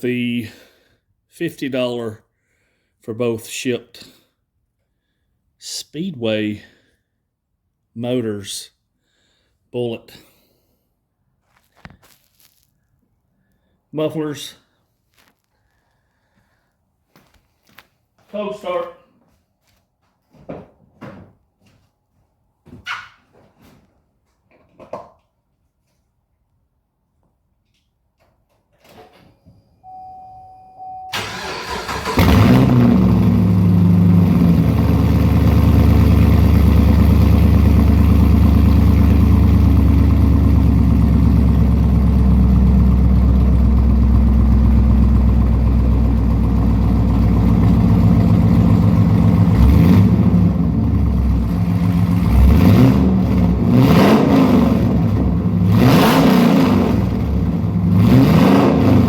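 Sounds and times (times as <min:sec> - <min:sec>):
engine revving: 0:31.2 - 0:45.2, 0:47.0 - 0:59.0
engine idling: 0:31.2 - 0:52.4.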